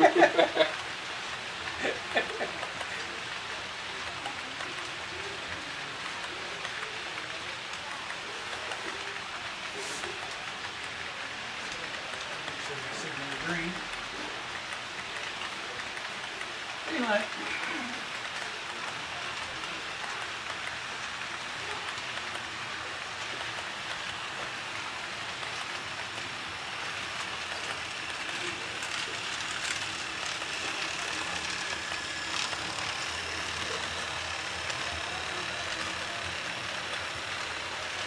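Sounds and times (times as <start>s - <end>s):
model train wheels rattling on rail: 0.0s - 38.0s.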